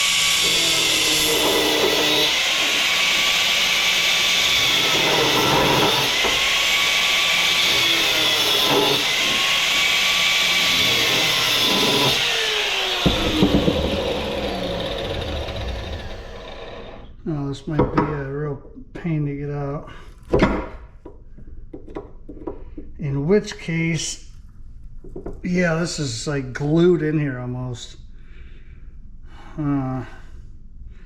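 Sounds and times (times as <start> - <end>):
power tool cutting metal: 0.0 - 17.1.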